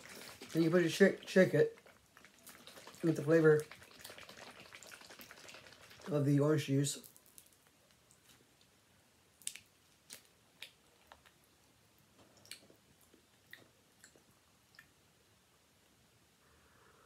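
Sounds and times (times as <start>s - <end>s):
faint mouth clicks and smacks: 1.7s - 6.1s, 9.4s - 11.5s, 12.2s - 15.0s.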